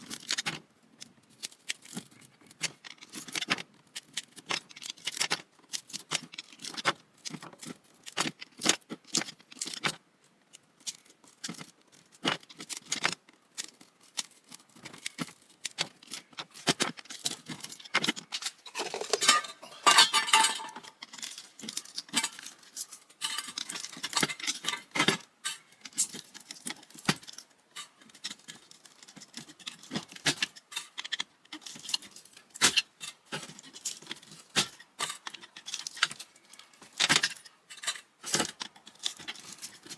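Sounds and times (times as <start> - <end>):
small metal parts rattling: 17.0 - 29.9
scraping and tearing of windings: 17.0 - 32.4.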